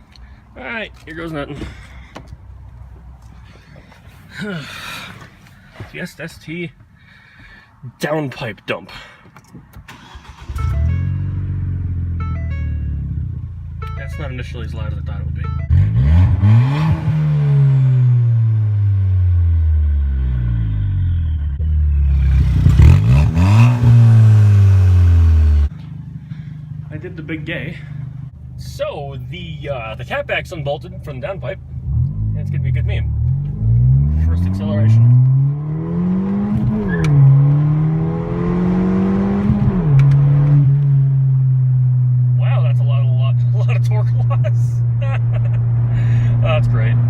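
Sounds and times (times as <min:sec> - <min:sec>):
loud car engine revving: 0:15.7 - 0:25.7, 0:31.8 - 0:42.4, 0:43.3 - 0:47.0.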